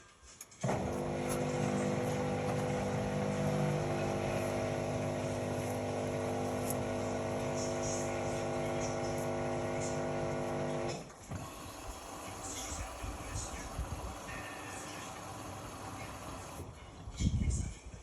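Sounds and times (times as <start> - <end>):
washing machine motor humming: 0.6 - 16.7.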